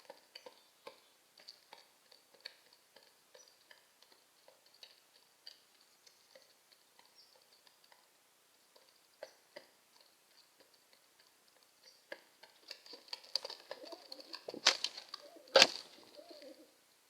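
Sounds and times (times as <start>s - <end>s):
pigeon cooing: 12.1s - 16.8s
loud sharp slaps: 15.5s - 15.9s.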